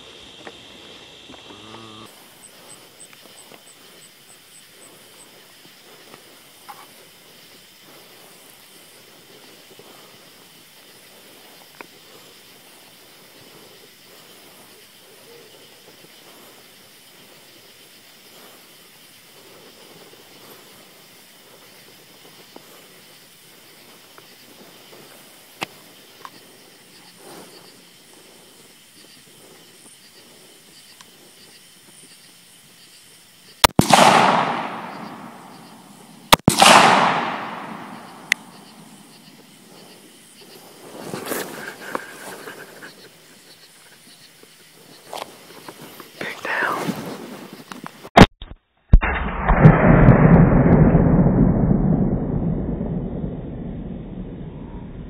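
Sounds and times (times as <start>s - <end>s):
steady hiss: 0.0s - 48.2s
rifle shot: 33.6s - 38.6s, 48.9s - 53.6s.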